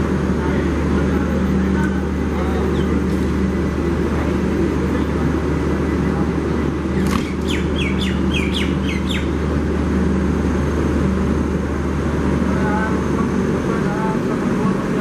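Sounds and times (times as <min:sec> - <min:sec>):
low train machine hum: 0:00.0 - 0:15.0
bird chirping: 0:07.1 - 0:09.3.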